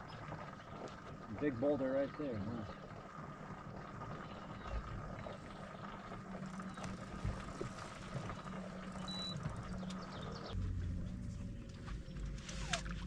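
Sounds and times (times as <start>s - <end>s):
boat motor running: 4.2s - 13.0s.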